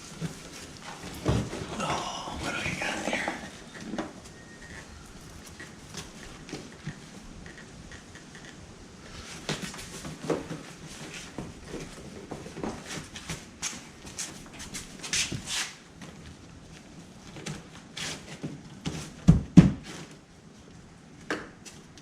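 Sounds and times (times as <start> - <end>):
parts and tools being handled: 3.3 - 8.5.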